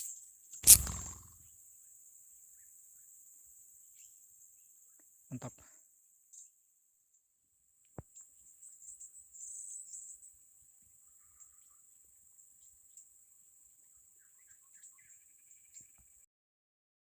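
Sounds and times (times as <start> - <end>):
short bird chirps: 0.6 - 1.4.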